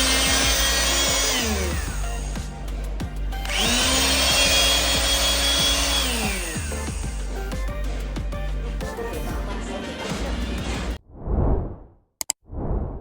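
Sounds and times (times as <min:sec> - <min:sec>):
electric pump motor whine: 0:00.0 - 0:07.9.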